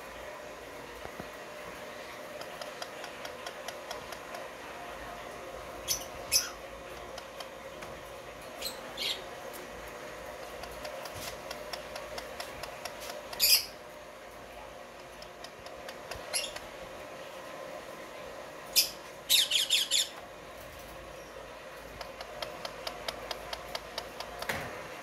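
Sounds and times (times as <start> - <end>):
birds squawking: 8.5 - 9.4, 13.3 - 13.8, 18.7 - 20.2.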